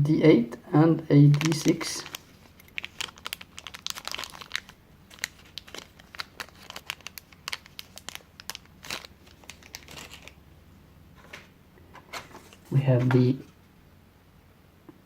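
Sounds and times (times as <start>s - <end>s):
plastic packaging crinkling: 1.2s - 10.4s.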